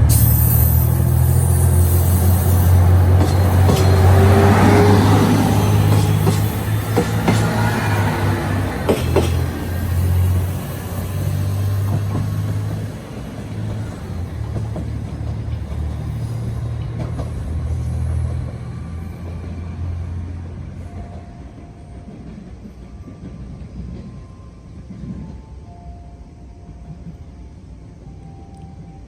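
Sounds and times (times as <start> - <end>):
diesel engine rumble: 0.0 - 19.2.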